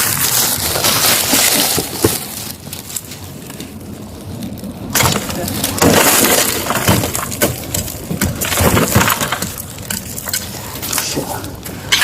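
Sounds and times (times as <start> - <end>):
broken glass scraping: 5.0 - 10.6.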